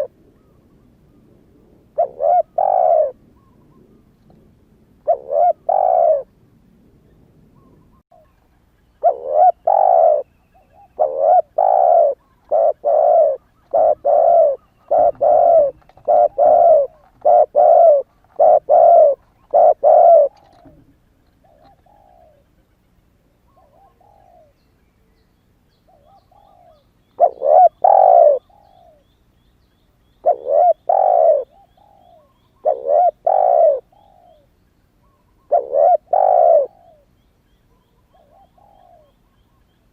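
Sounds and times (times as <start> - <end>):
dove cooing: 0.0 - 0.6, 1.9 - 4.1, 5.0 - 6.3, 9.0 - 22.4, 23.5 - 24.6, 25.9 - 29.1, 30.2 - 37.1, 37.7 - 39.6.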